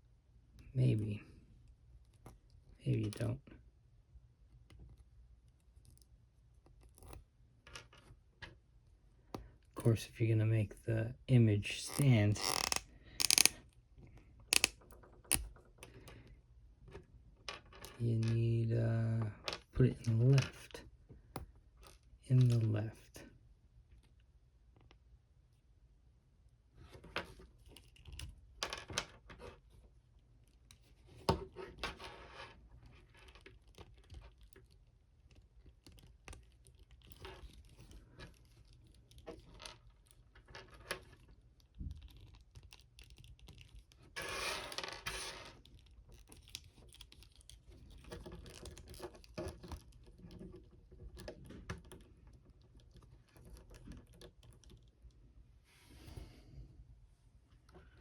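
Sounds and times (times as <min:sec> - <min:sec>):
plastic figure joints clicking: 0:11.9 - 0:13.6, 0:14.5 - 0:15.5.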